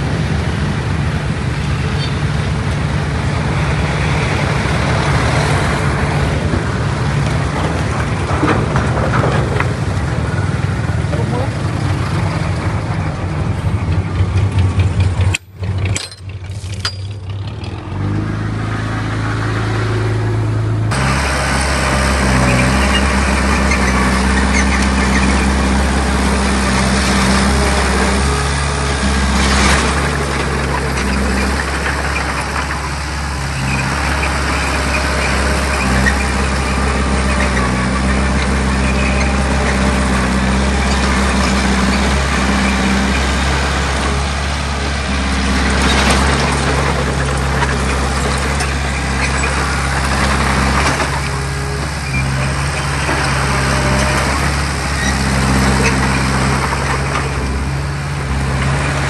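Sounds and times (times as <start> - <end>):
heavy machinery engine running: 0.0 - 59.0.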